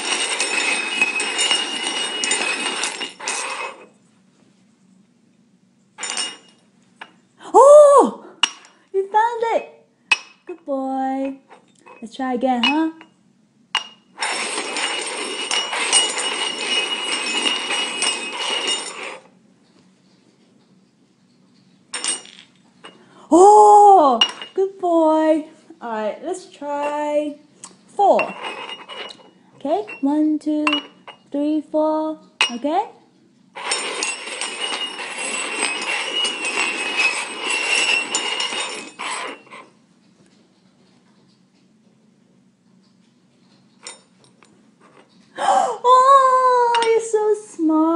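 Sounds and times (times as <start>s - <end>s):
thin ringing of cups: 0.0s - 3.8s, 6.0s - 7.2s, 8.4s - 8.8s, 11.2s - 13.2s, 13.8s - 19.3s, 21.9s - 23.1s, 24.1s - 24.6s, 28.1s - 31.3s, 32.4s - 32.6s, 33.6s - 39.7s
metal cups scraping on floor: 0.0s - 4.0s, 6.0s - 7.2s, 13.8s - 19.4s, 21.9s - 23.0s, 24.1s - 24.6s, 28.0s - 31.3s, 33.5s - 39.8s, 43.4s - 45.3s.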